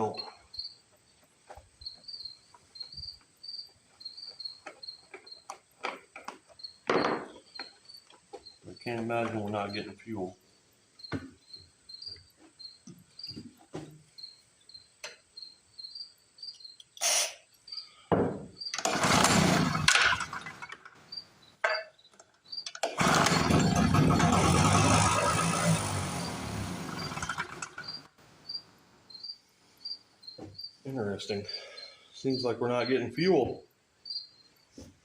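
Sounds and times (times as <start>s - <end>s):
crickets chirping: 0.0s - 18.8s, 21.0s - 22.8s, 26.9s - 34.8s
generator engine running: 18.8s - 20.6s, 22.8s - 28.1s
starter cord pull: 22.7s - 25.6s.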